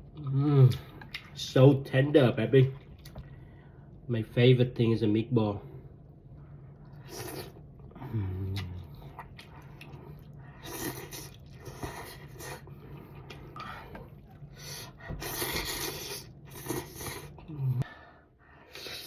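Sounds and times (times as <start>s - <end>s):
chewing and slurping: 6.8s - 17.5s.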